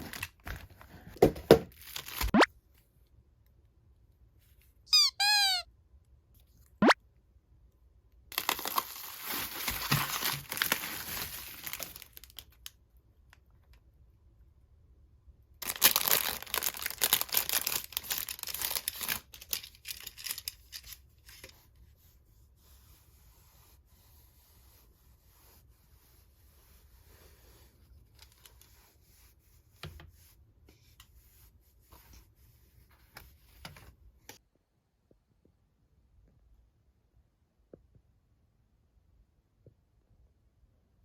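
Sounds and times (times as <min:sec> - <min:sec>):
packaging tearing and crinkling: 0:01.7 - 0:02.3, 0:08.3 - 0:12.5, 0:15.6 - 0:20.9.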